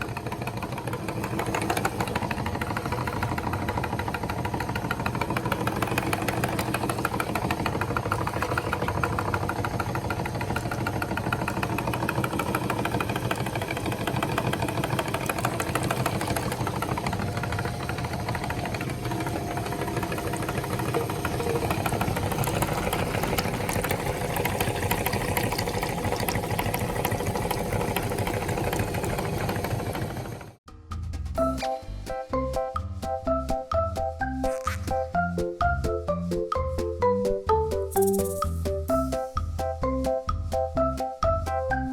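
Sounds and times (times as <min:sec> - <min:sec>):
electric meat grinder running: 0:00.0 - 0:30.6.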